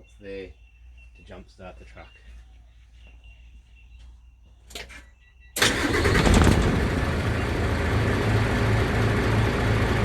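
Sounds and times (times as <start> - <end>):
truck engine starting and idling: 5.6 - 10.0.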